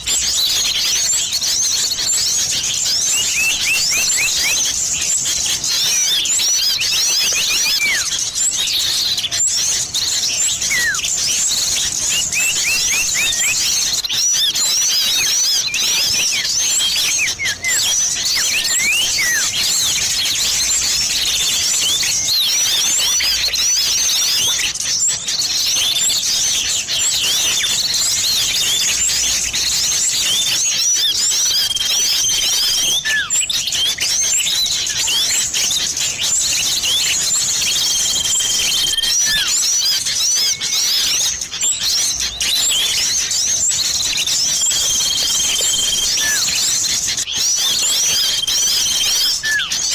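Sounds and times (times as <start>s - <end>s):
rapid high-pitched bird chirps: 0.0s - 49.9s
steady held whistle: 3.0s - 4.8s, 5.9s - 8.2s, 10.5s - 11.2s, 11.8s - 20.0s, 30.3s - 35.5s, 36.5s - 41.1s, 44.0s - 49.9s.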